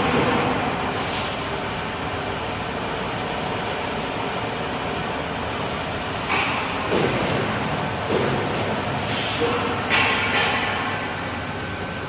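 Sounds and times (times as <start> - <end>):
factory machinery noise: 0.0 - 12.0.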